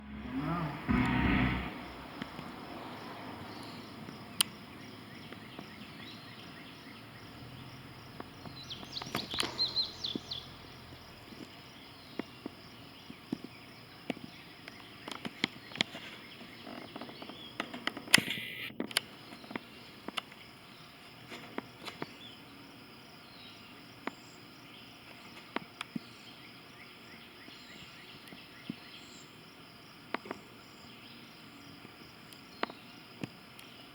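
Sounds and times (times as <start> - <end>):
insects buzzing: 0.0 - 33.9
noisy thump: 0.8 - 2.6
bird chirps: 3.5 - 10.8.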